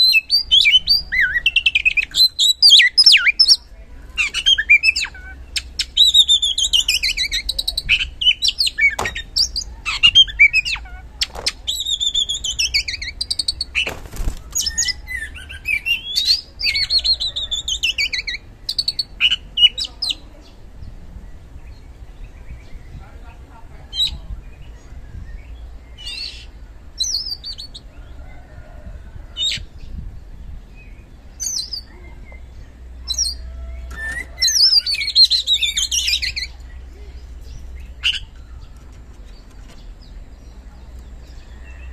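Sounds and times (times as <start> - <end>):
magpie-robin singing whistled phrases: 0.0 - 10.9, 11.5 - 13.9, 14.6 - 20.2, 31.4 - 32.4, 33.1 - 36.6.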